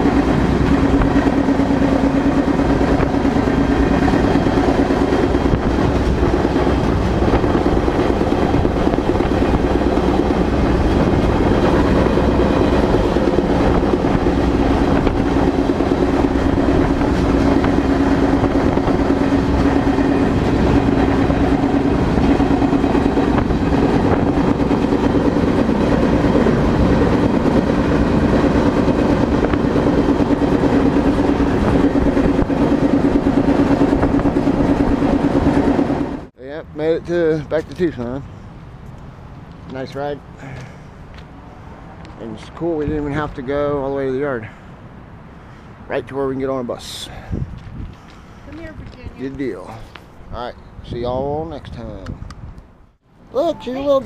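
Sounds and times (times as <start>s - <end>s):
steady humming tone: 0.0s - 36.3s
freight train wheels rumbling: 0.0s - 38.4s, 39.3s - 52.6s.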